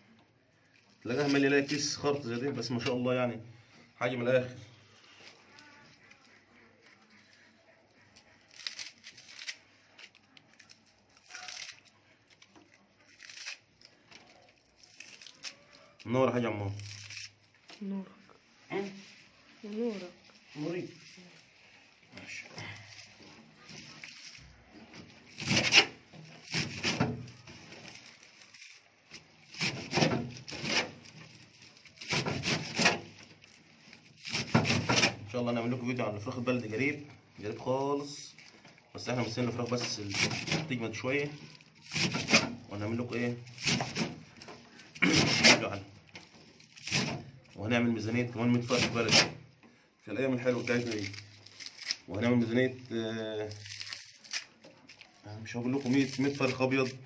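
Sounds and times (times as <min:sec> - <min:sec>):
rough scraping and rubbing: 0:18.4 - 0:38.4, 0:39.0 - 0:49.5
sack rustling and crinkling: 0:18.6 - 0:47.8.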